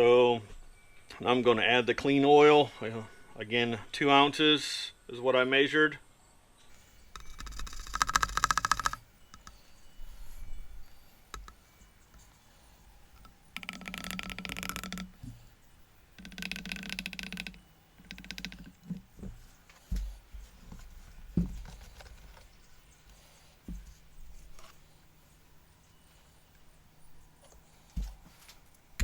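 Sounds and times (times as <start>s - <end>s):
rattling scraping noise: 6.8s - 9.6s, 13.2s - 15.4s, 16.2s - 22.6s
dull knocks: 17.4s - 22.4s.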